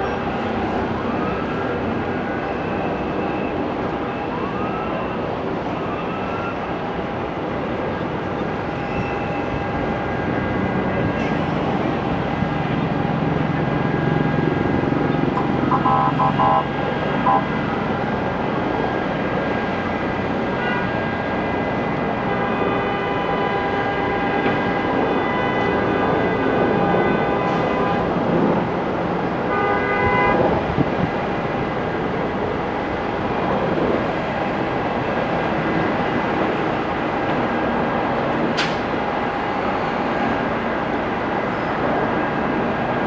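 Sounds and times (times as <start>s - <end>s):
urban traffic noise: 0.0s - 43.0s
vehicle horn honks: 15.4s - 17.6s, 29.5s - 30.5s.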